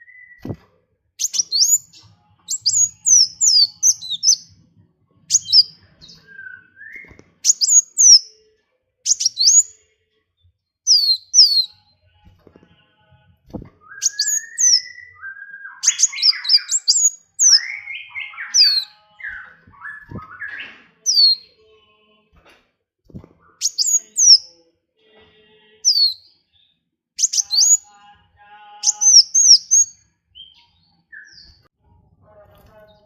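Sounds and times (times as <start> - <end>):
songbirds whistling: 1.2 - 4.5, 5.3 - 8.3, 9.1 - 9.7, 10.9 - 11.8, 13.5 - 21.4, 23.4 - 24.5, 27.2 - 27.8, 28.8 - 31.6
warbled bird chatter: 15.8 - 21.4.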